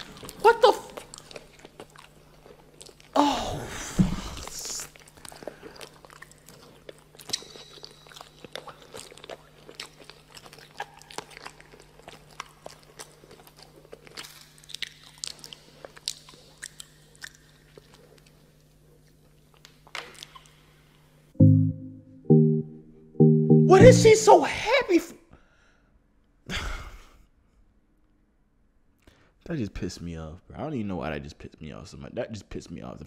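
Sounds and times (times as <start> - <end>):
crunchy chewing: 0.0 - 3.2, 4.8 - 21.0
loud music: 21.4 - 24.3.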